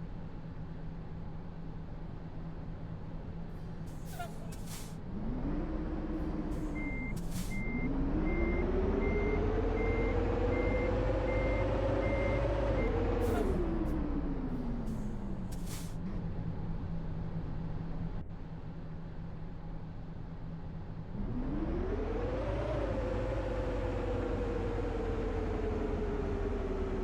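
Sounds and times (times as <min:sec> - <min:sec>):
bus drivetrain whining: 0:00.0 - 0:27.0
short air hisses: 0:04.0 - 0:05.0, 0:15.5 - 0:16.0.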